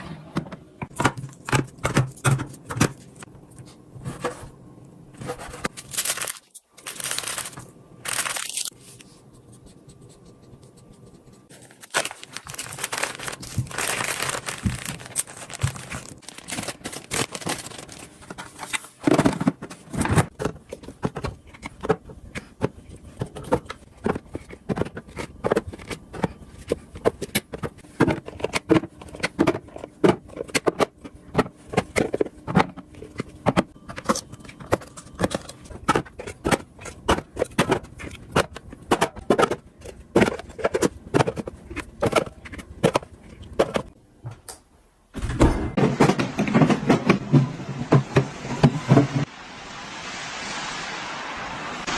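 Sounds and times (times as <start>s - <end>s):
plastic packaging crinkling: 5.7s - 8.8s, 11.5s - 18.8s.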